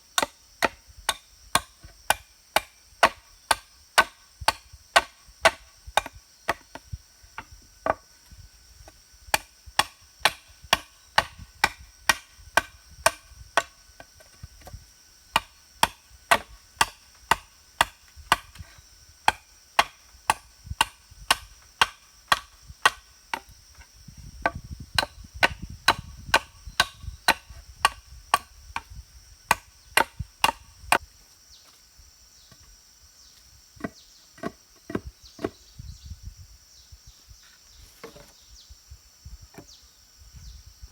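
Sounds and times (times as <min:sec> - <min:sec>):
insects buzzing: 0:00.0 - 0:40.9
blade chopping into wood: 0:09.3 - 0:13.8, 0:15.4 - 0:18.6, 0:19.3 - 0:23.5, 0:29.5 - 0:30.7.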